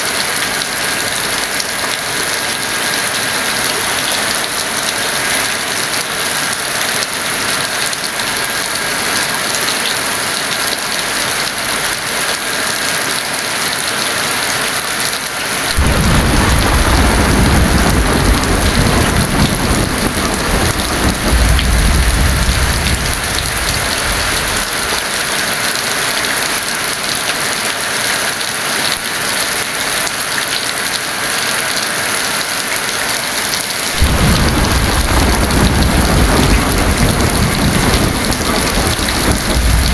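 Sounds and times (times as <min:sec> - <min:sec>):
heavy rain: 0:00.0 - 0:39.9
thunder rumbling: 0:15.8 - 0:25.2, 0:34.0 - 0:39.9.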